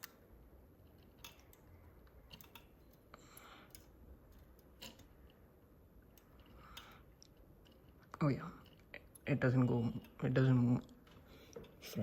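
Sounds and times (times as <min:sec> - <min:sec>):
model truck parts clicking: 0:00.8 - 0:05.4.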